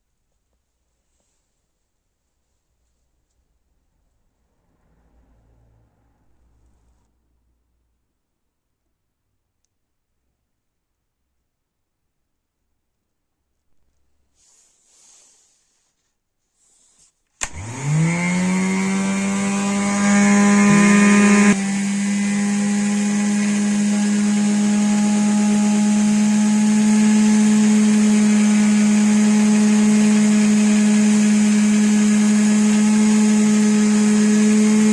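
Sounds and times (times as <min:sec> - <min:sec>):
vacuum cleaner switch click: 0:17.4 - 0:18.6
vacuum cleaner motor whine: 0:17.4 - 0:34.9.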